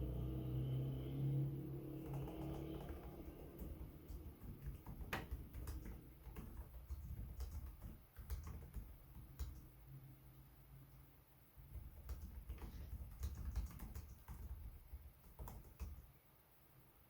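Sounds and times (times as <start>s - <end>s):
laptop keyboard typing: 1.8s - 9.8s, 11.6s - 16.2s.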